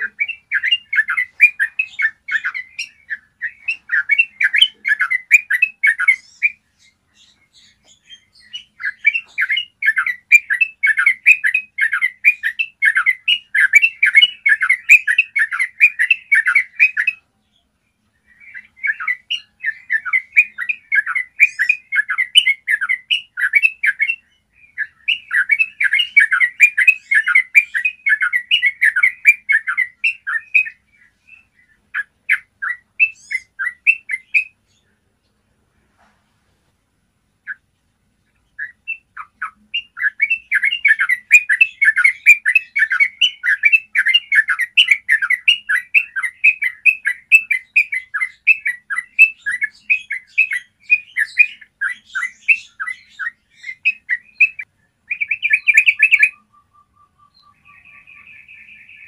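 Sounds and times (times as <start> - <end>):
bird singing rapid chattering notes: 0.0 - 35.0, 37.4 - 59.0.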